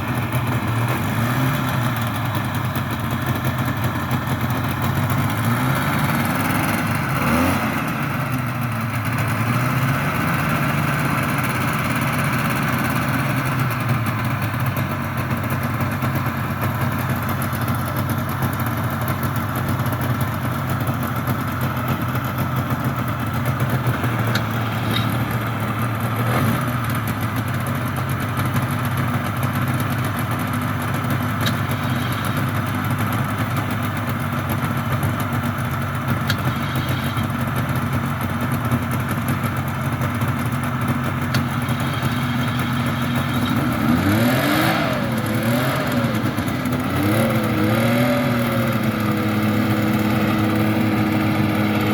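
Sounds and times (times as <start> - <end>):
hovercraft engines idling: 0.0 - 51.9.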